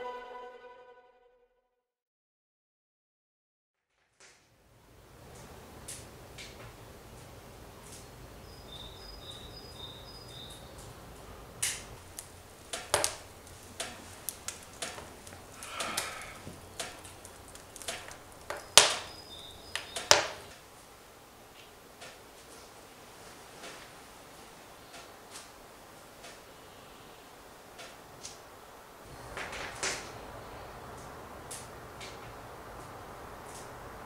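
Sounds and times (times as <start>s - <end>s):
sharp clicks and knocks: 11.6s - 20.6s.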